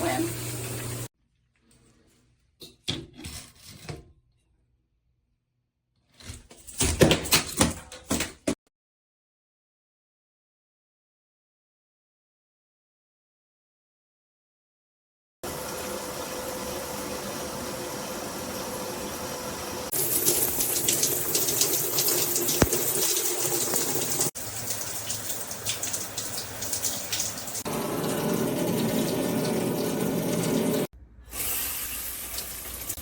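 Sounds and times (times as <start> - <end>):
water spraying from shower head: 0.0 - 1.1, 15.6 - 33.0.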